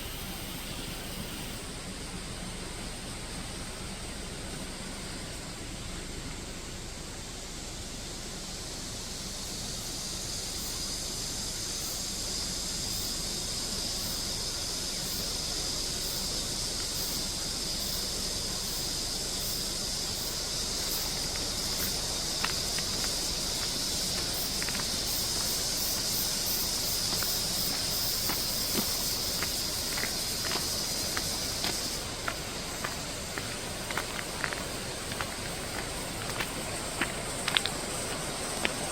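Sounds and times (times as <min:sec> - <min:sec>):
cicadas droning: 0:00.0 - 0:38.9
mountain stream rushing: 0:11.4 - 0:38.9.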